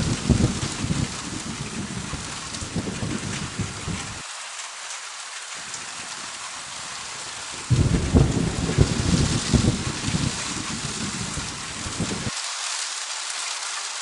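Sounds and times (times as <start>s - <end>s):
loud thunderclap: 0.0s - 4.2s, 7.7s - 12.3s
thunder rumbling: 0.0s - 4.2s, 7.6s - 12.4s
heavy rain: 0.0s - 14.0s.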